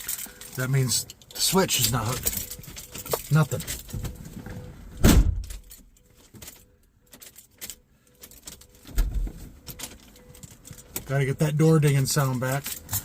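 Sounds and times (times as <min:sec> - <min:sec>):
keys jangling in ignition: 0:00.0 - 0:04.4, 0:05.4 - 0:13.0.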